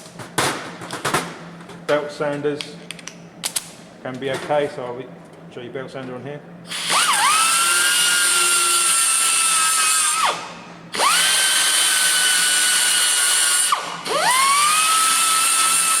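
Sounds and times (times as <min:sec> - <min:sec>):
belt sander whining: 0:06.7 - 0:16.0.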